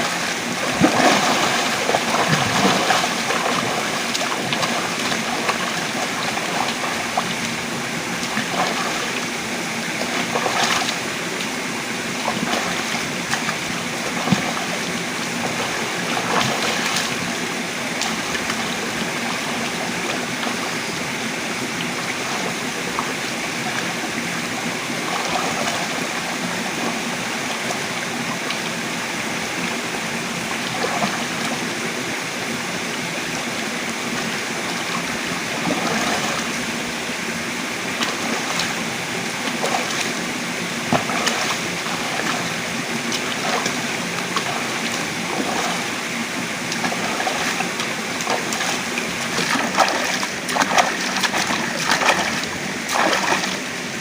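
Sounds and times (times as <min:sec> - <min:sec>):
sharp splashes: 0:00.0 - 0:07.4, 0:39.4 - 0:54.0
running water rushing: 0:00.0 - 0:54.0.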